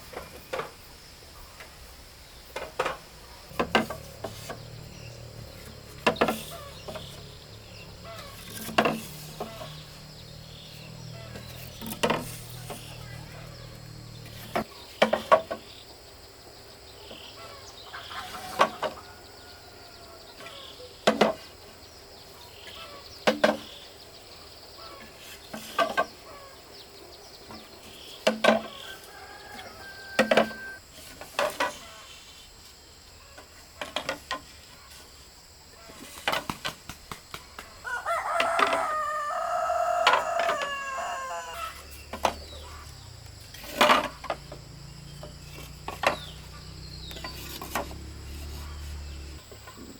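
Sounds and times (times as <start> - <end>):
sharp knocks: 2.6 - 4.8
rooster crowing: 17.9 - 20.3, 28.7 - 30.8, 37.8 - 43.2.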